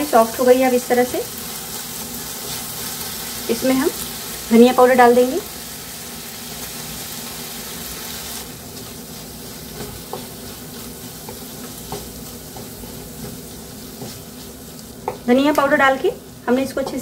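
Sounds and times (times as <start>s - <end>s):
vegetables sizzling in a pan: 0.0s - 17.0s
spatula tapping a pan: 9.7s - 15.8s, 16.8s - 17.0s.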